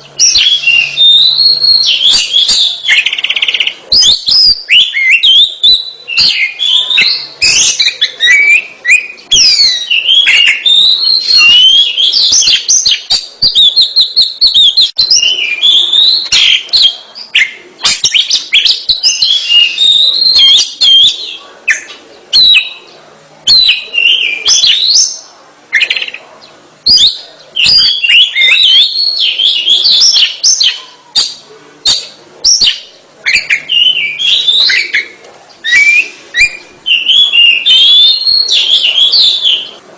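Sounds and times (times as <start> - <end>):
bird singing: 0.0 - 39.8.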